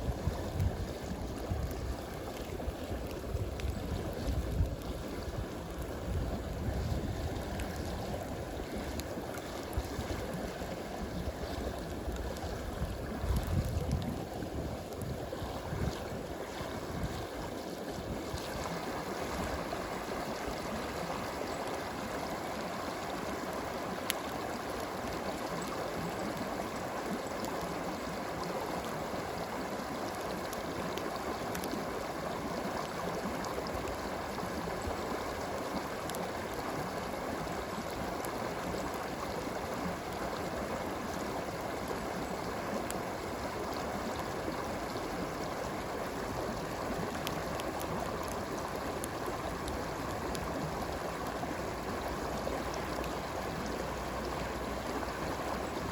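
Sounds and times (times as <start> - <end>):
stream water flowing: 0.0 - 55.9
campfire pops: 30.1 - 32.0, 46.6 - 51.4.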